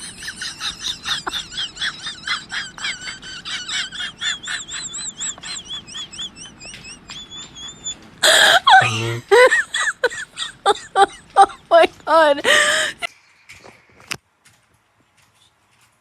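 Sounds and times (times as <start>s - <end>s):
bird chirping high: 0.0s - 8.2s.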